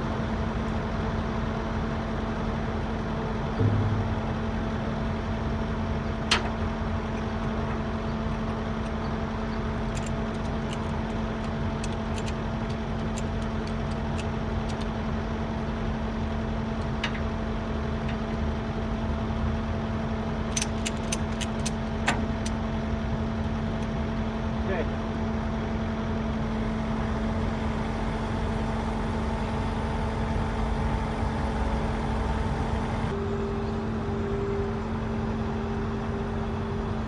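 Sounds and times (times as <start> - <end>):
construction machine engine running: 0.0 - 37.0
sharp knocks: 3.6 - 4.4.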